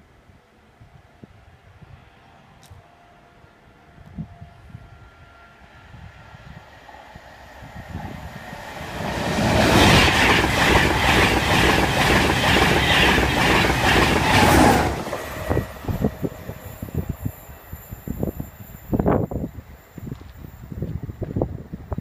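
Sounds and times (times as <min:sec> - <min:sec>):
train rushing past: 0:05.0 - 0:20.6.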